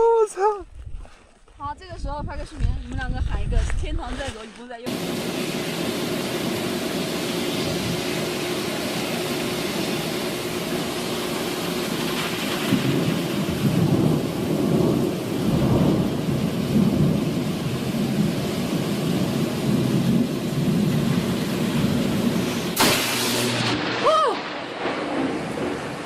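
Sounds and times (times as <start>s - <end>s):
heavy rain falling: 4.9s - 26.0s
rolling thunder: 11.9s - 26.0s.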